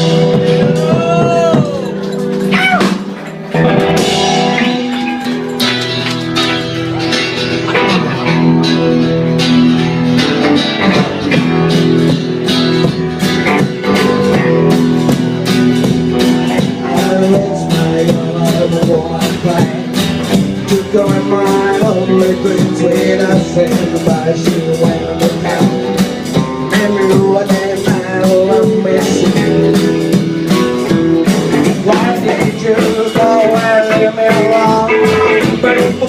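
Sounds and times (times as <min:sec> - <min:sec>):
guitar: 0:00.0 - 0:36.0
steady drum beat: 0:00.0 - 0:36.0.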